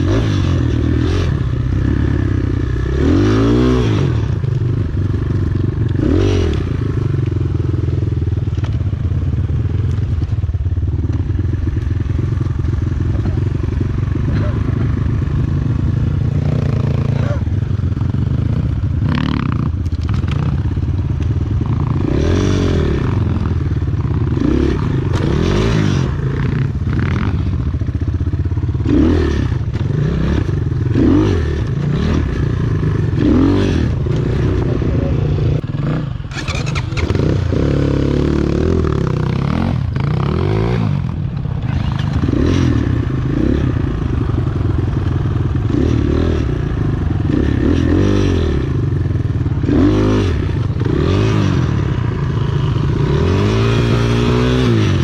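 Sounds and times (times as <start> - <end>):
motorcycle engine revving: 0.0 - 55.0
clatter and knocks over rough ground: 19.8 - 22.0, 41.4 - 42.6.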